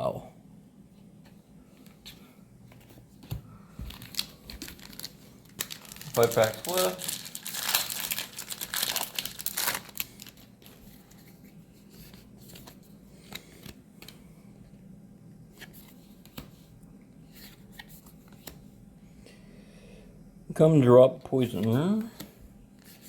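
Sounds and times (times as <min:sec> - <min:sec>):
cards being handled: 0:01.2 - 0:14.2, 0:15.5 - 0:16.7, 0:17.3 - 0:18.6
foil wrapper crinkling and tearing: 0:03.9 - 0:10.8.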